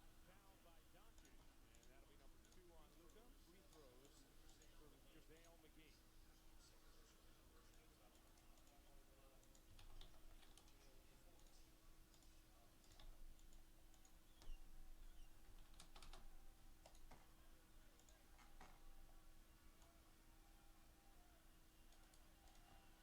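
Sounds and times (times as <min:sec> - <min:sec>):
computer keyboard typing: 0:01.0 - 0:05.6, 0:07.7 - 0:19.2, 0:21.8 - 0:23.0.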